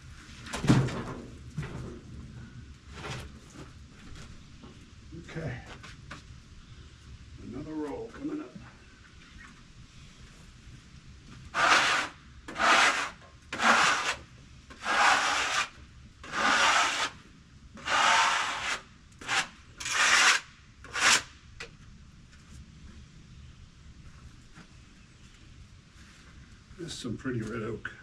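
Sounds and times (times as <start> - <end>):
rough scraping strokes: 11.5 - 17.2, 17.8 - 21.3.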